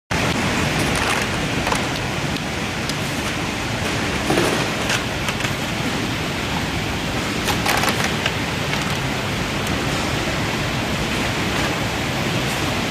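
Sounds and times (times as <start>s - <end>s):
water sprays rushing: 0.1s - 12.9s
trays clattering: 3.1s - 6.0s, 7.4s - 9.1s.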